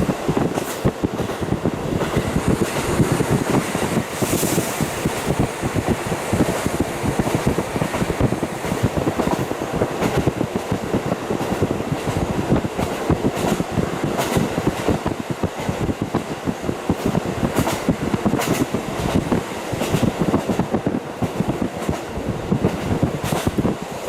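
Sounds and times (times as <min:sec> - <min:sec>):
train engine and wheels rumbling: 0:00.0 - 0:24.0
wind rush: 0:00.0 - 0:24.0.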